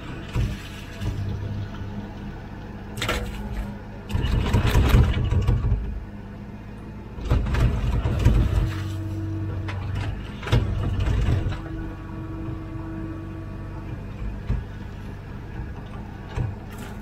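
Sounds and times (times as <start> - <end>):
excavator diesel engine running: 0.0 - 17.0
knocks and scrapes: 0.2 - 1.5, 7.2 - 11.8.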